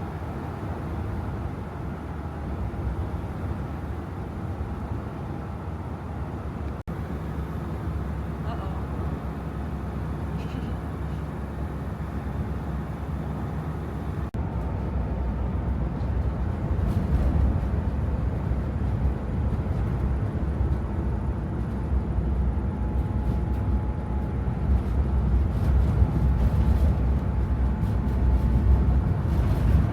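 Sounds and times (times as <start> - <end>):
vehicle rumbling: 0.0 - 29.9.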